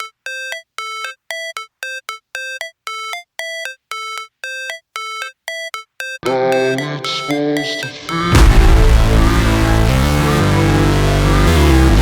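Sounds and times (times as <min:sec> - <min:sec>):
electronic ringtone beeping: 0:00.0 - 0:08.8.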